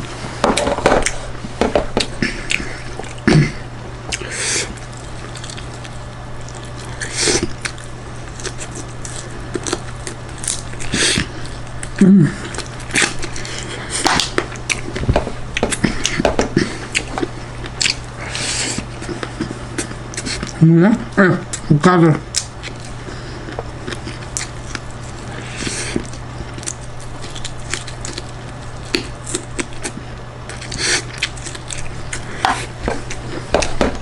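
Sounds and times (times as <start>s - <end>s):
steady low hum: 0.0s - 34.0s
chewing with wet mouth clicks: 4.1s - 10.8s, 16.9s - 18.0s, 22.3s - 25.0s, 25.9s - 33.8s.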